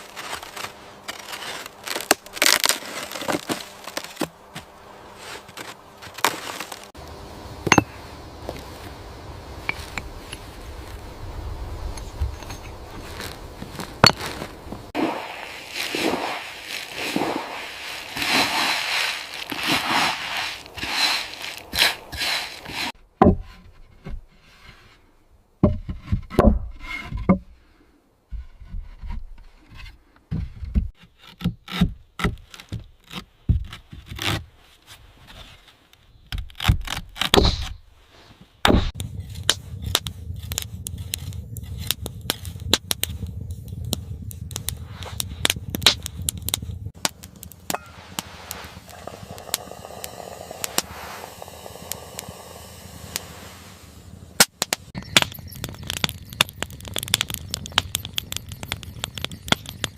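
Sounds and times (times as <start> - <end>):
scraping wood by hand: 12.4 - 25.0
steady low hum: 39.0 - 59.9.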